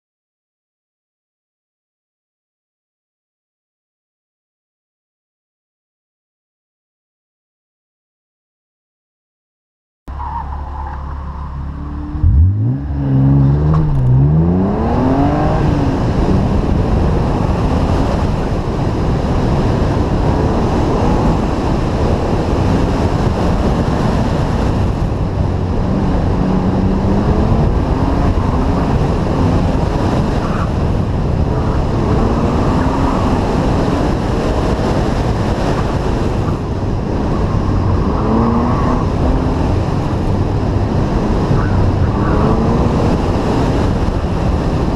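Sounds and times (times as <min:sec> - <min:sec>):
car engine revving hard: 0:11.6 - 0:44.9.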